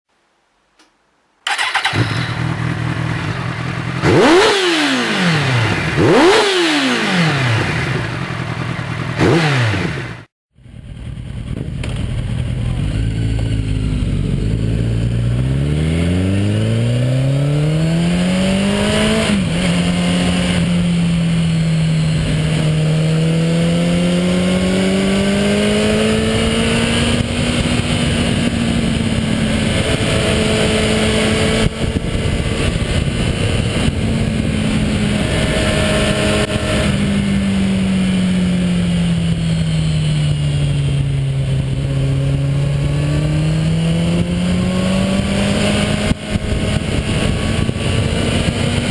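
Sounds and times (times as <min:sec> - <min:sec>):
motorcycle engine revving: 0:01.4 - 0:48.9
wind noise: 0:17.9 - 0:48.9.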